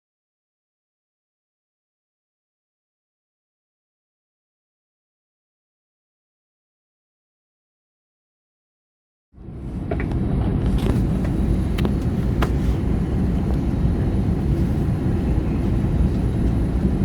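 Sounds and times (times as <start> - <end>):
airplane cabin rumble: 9.4 - 17.0.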